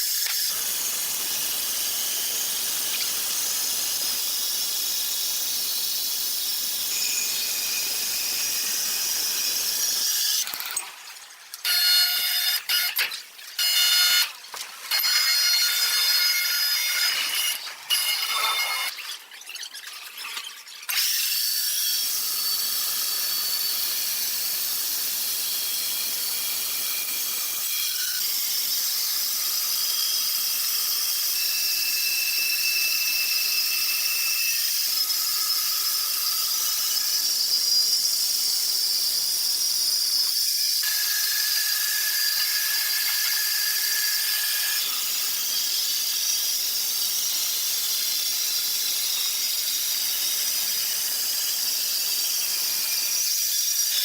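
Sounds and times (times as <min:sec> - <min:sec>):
saw hissing through wood: 0:00.0 - 0:10.4
saw high-pitched whines: 0:00.0 - 0:10.6, 0:11.6 - 0:14.3, 0:14.9 - 0:19.6, 0:20.9 - 0:54.0.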